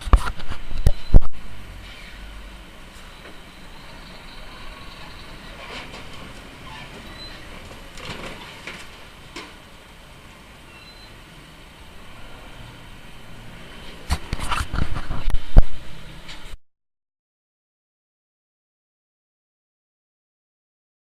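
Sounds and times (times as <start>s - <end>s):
vehicle running: 0.0s - 16.6s
crash bangs and crunching impacts: 5.3s - 9.7s.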